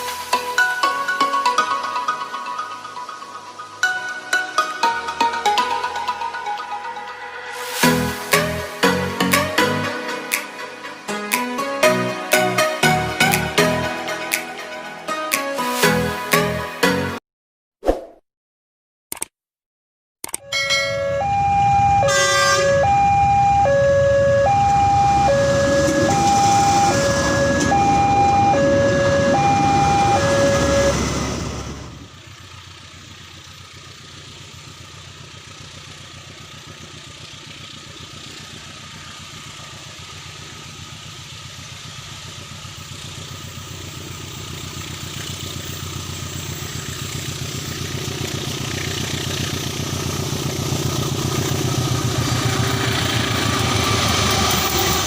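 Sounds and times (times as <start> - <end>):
level-crossing alarm tones: 0.0 - 11.2, 20.4 - 32.0
diesel locomotive engine hum: 0.0 - 17.0, 20.4 - 55.0
passing train rumble: 20.6 - 55.0.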